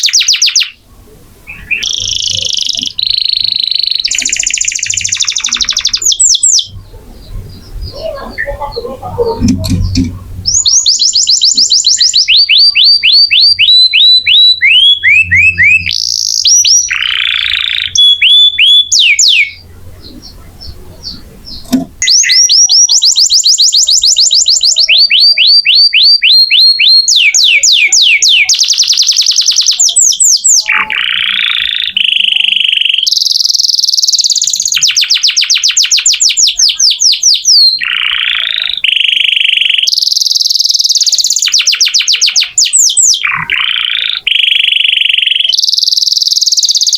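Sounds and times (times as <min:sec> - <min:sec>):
canary singing: 0:00.0 - 0:46.9.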